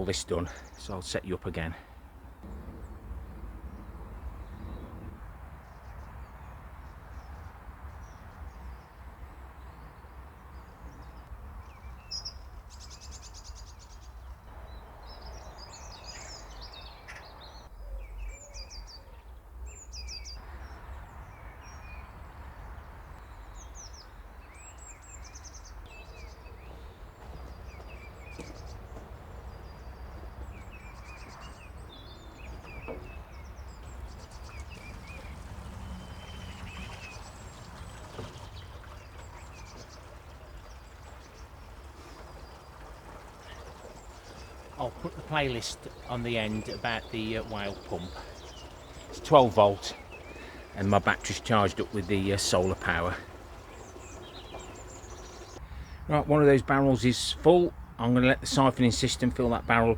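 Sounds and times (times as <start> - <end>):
small birds chirping: 0.0 - 59.9
low outdoor rumble: 1.8 - 11.8, 19.7 - 59.9.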